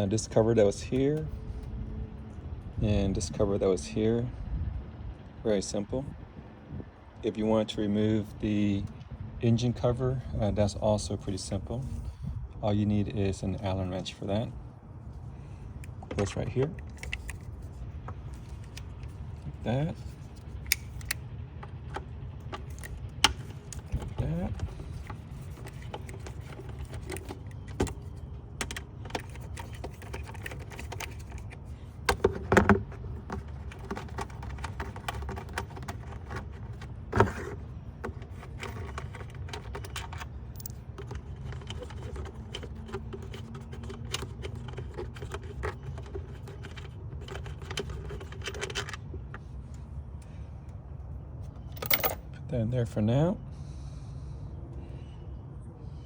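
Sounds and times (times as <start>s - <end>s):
steady low hum: 0.0s - 56.0s
hand tools clicking and rattling: 20.0s - 49.3s, 51.6s - 52.3s.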